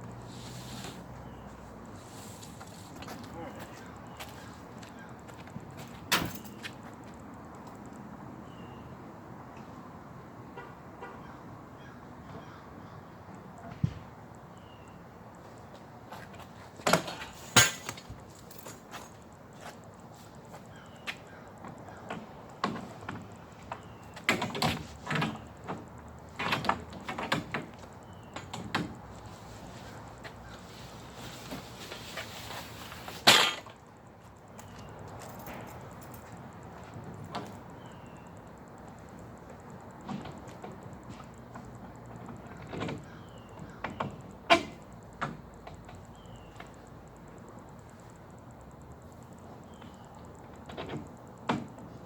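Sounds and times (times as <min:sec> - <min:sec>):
knocks and clunks of handling: 0:21.6 - 0:29.0, 0:49.8 - 0:51.9
gear clunking and scraping: 0:21.6 - 0:33.9, 0:39.0 - 0:52.0.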